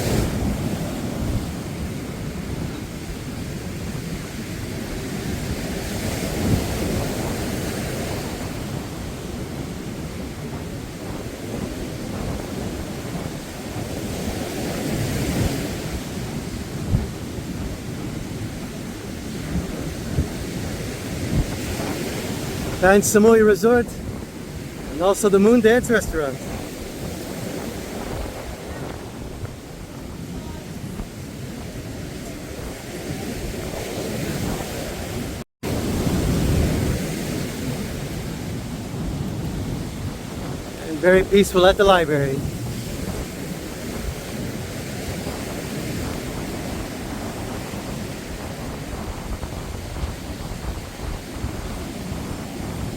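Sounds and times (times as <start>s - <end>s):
surf washing onto beach: 0.0s - 52.9s
wind on microphone: 0.0s - 52.9s.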